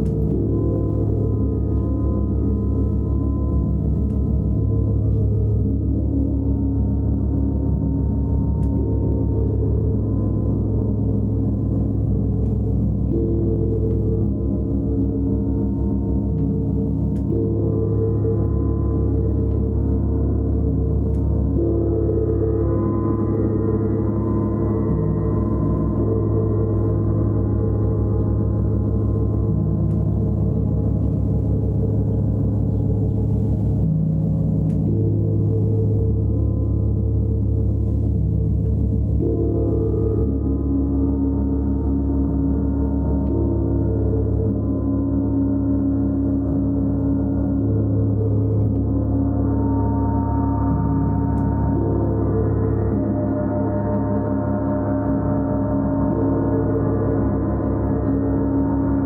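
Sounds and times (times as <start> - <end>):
bass pulsing: 0.0 - 59.0
sustained shimmering gong: 0.0 - 59.0
gong tones: 34.5 - 59.0.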